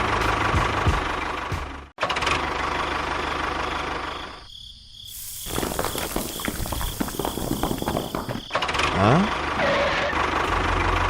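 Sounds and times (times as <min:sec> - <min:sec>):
small engine rattling: 0:05.3 - 0:09.6.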